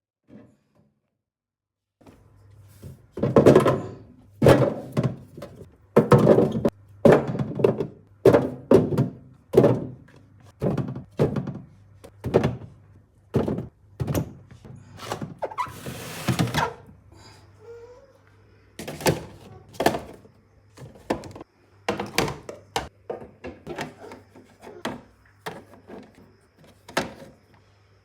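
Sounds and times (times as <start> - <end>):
dull thunks and knocks: 3.1 - 14.6.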